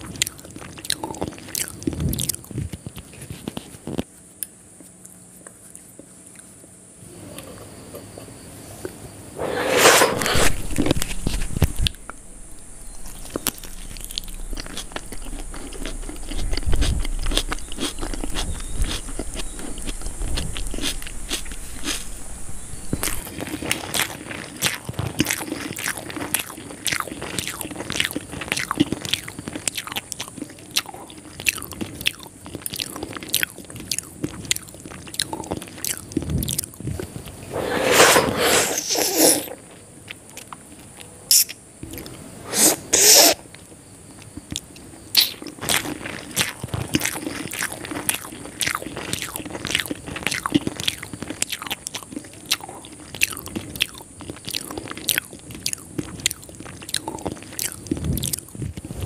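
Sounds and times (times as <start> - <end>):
crunchy food chewing: 0.0 - 59.0
wet mouth clicks: 41.3 - 43.4.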